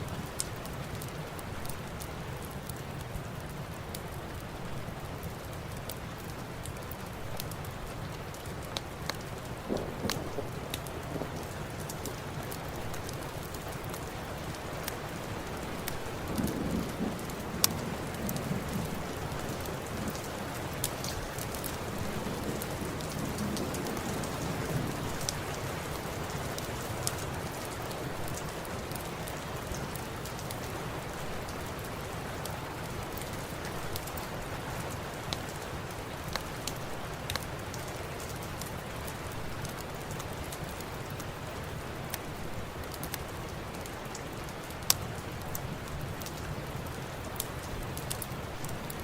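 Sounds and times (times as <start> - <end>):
steady rain hiss: 0.0 - 49.0
fireplace crackling pops: 5.2 - 31.6, 33.1 - 41.4.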